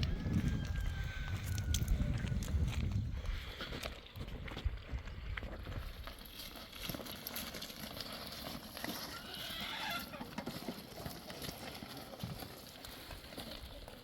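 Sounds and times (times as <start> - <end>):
animal calling: 9.1 - 10.3.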